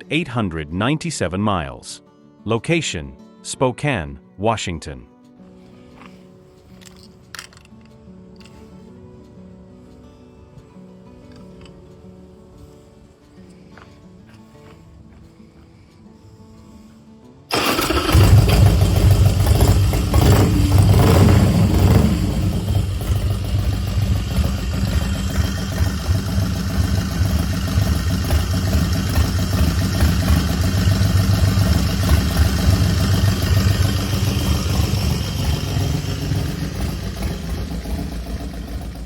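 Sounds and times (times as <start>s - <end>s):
motorcycle engine idling: 17.5s - 39.0s.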